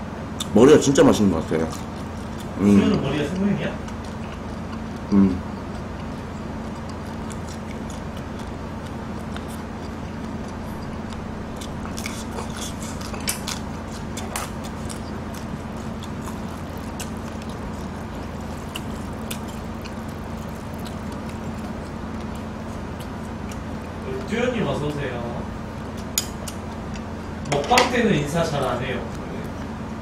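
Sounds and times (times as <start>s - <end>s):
low hum: 1.2s - 30.0s
crunchy chewing of shrimp: 1.3s - 24.3s.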